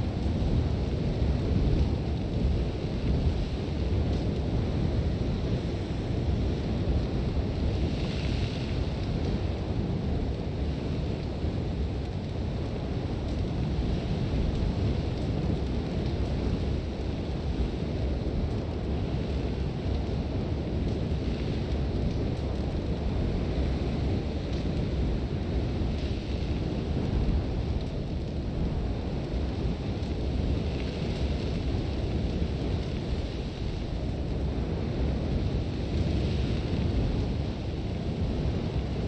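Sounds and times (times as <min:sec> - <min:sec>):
strong wind rumbling: 0:00.0 - 0:39.0.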